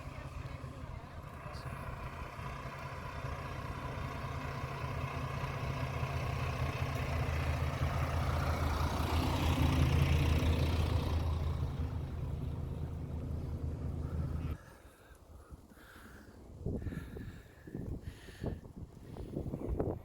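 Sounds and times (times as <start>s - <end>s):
diesel train engine humming: 0.0s - 14.7s.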